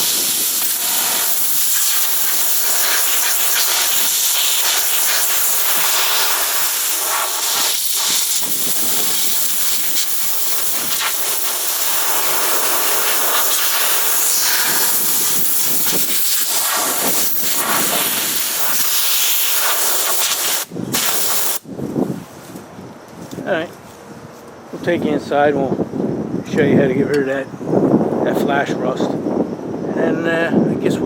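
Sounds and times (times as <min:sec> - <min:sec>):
air blow gun hissing: 0:00.0 - 0:21.7.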